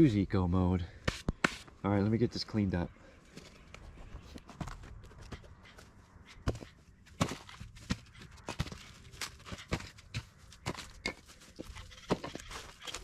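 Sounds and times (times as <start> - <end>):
firewood pieces knocking and clattering: 7.2 - 13.0.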